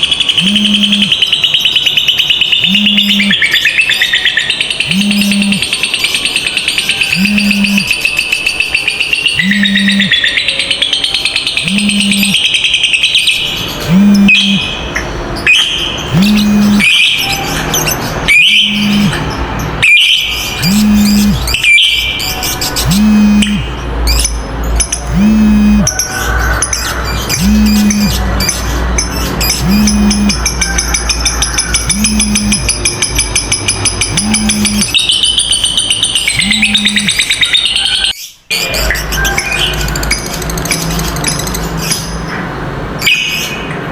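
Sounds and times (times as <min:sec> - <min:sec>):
harsh shrill bird calls: 0:00.0 - 0:42.2
lovebirds chattering: 0:00.0 - 0:42.3
low hum: 0:00.4 - 0:01.1, 0:04.9 - 0:05.6, 0:07.2 - 0:07.9, 0:11.6 - 0:12.4, 0:13.9 - 0:14.6, 0:16.1 - 0:16.9, 0:18.7 - 0:19.3, 0:20.6 - 0:21.5, 0:22.8 - 0:23.8, 0:25.1 - 0:25.9, 0:27.3 - 0:28.3, 0:29.5 - 0:30.5, 0:31.8 - 0:32.7, 0:34.1 - 0:34.9, 0:36.4 - 0:37.1
low steady tone: 0:04.9 - 0:05.6, 0:07.2 - 0:07.9, 0:16.1 - 0:16.9, 0:18.6 - 0:19.3, 0:20.6 - 0:21.5, 0:22.8 - 0:23.8, 0:24.8 - 0:25.9, 0:27.4 - 0:28.2, 0:29.6 - 0:30.6, 0:31.8 - 0:32.8, 0:33.9 - 0:34.9.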